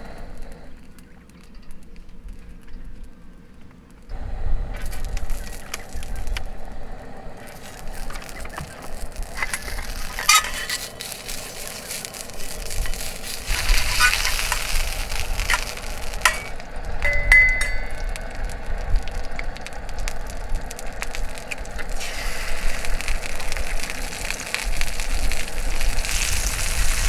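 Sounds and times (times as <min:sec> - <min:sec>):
food sizzling in sandwich maker: 0:04.8 - 0:27.0
metal cooking gear clinking: 0:07.4 - 0:19.3.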